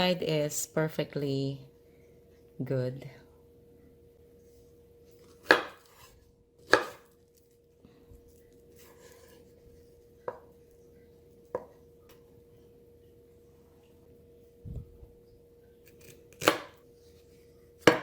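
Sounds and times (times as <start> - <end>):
knife chopping plantain: 5.2 - 7.2, 15.9 - 16.8, 17.8 - 18.0.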